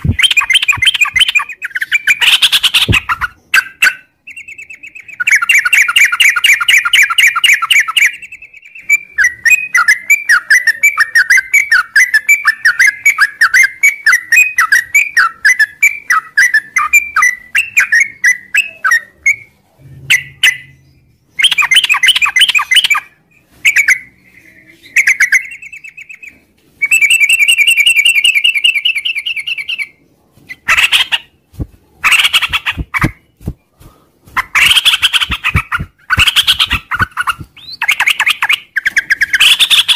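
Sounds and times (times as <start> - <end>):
bird singing chattering notes: 0.0 - 23.1.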